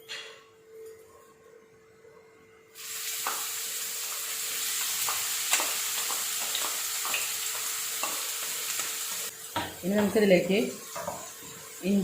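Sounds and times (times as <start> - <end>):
onion sizzling in hot oil: 2.8 - 12.0.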